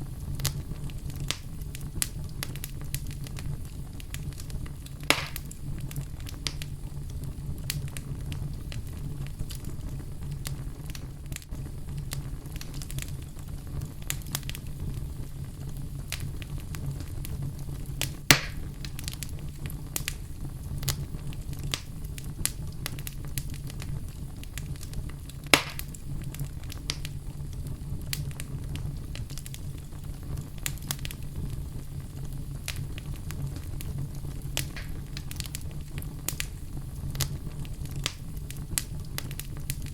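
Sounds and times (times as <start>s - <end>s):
fire crackles and small pops: 0.0s - 39.9s
fire low rumble: 0.0s - 39.9s
sharp loud fire pops: 5.0s - 5.5s, 18.3s - 18.7s, 25.5s - 26.0s, 34.6s - 35.4s.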